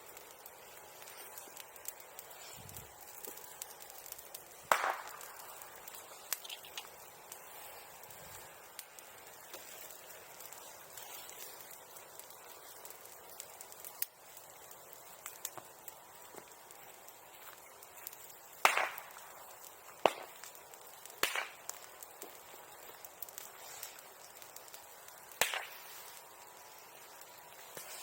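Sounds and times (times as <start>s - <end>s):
bonfire crackling: 0.0s - 28.0s
loud sharp pop: 4.7s - 5.1s, 18.6s - 19.0s.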